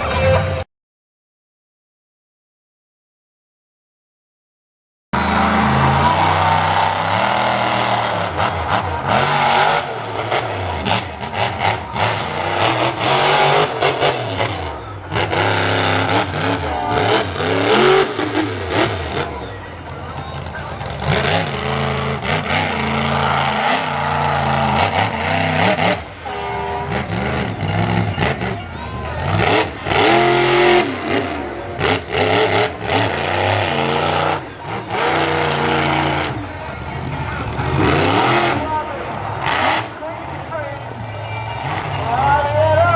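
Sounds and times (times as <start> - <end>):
truck engine revving hard: 5.2 - 42.9.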